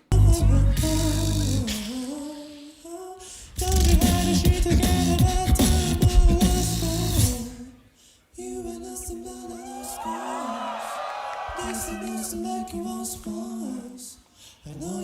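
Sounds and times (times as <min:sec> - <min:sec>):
beatboxed bass and vocal percussion: 0:00.0 - 0:02.8, 0:03.5 - 0:07.6
person singing melody: 0:00.0 - 0:07.7.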